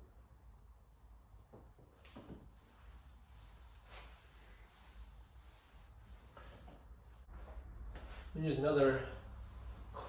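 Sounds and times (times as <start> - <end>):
towel wiping car paint: 2.6 - 7.4.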